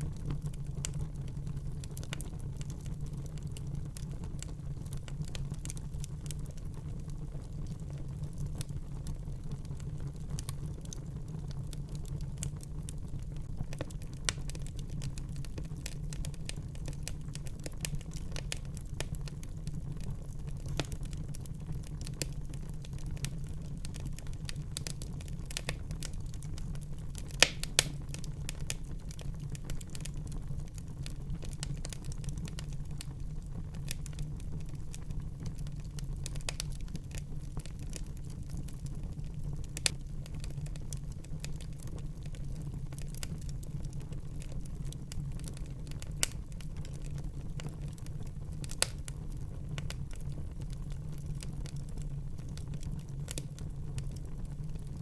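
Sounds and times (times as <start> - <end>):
fire crackling and popping: 0.0 - 55.0
low rumble of flame: 0.0 - 55.0.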